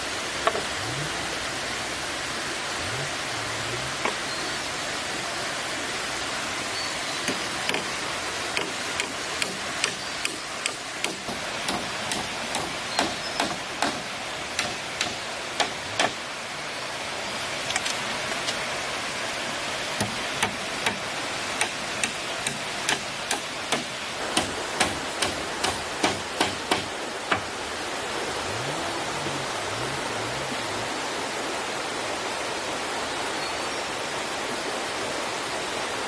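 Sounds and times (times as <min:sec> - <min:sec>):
stream rushing: 0:00.0 - 0:36.0
tool knocking on bamboo: 0:00.4 - 0:00.7, 0:07.2 - 0:16.2, 0:20.0 - 0:21.0, 0:21.6 - 0:27.5.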